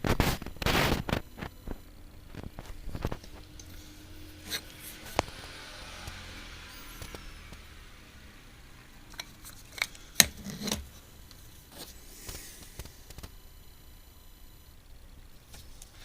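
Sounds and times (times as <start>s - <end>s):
clicks and taps of lens parts: 9.1s - 13.4s.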